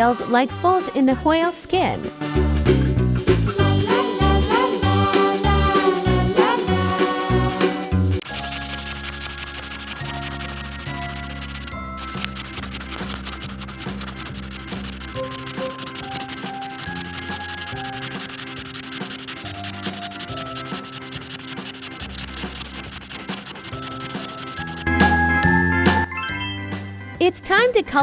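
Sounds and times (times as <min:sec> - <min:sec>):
soft background music: 0:02.7 - 0:13.4
drawing tool scratching on paper: 0:08.2 - 0:24.8.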